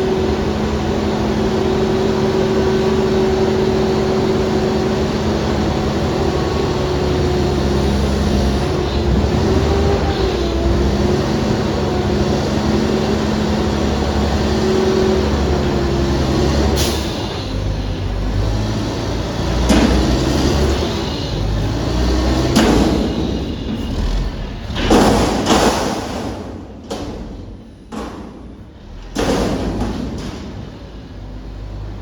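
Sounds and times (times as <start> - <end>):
garbage truck engine revving: 0.0 - 32.0
loud bangs or hisses: 22.3 - 31.0.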